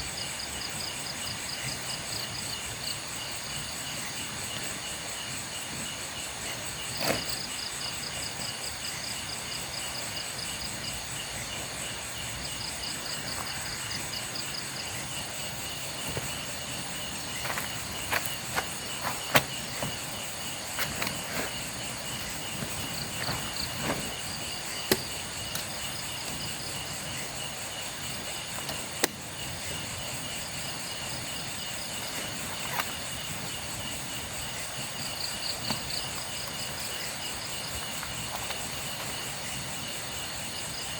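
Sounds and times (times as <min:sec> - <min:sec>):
crickets and insects calling: 0:00.0 - 0:40.9
sharp clicks and knocks: 0:17.3 - 0:20.2, 0:24.8 - 0:25.9.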